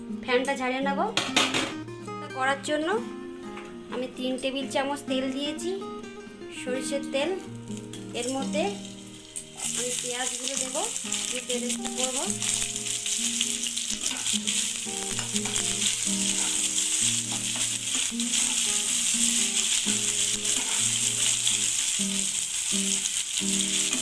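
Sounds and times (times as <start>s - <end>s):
soft background music: 0.0s - 24.0s
onions sizzling in oil: 7.4s - 24.0s
stirring in a pan: 9.2s - 24.0s.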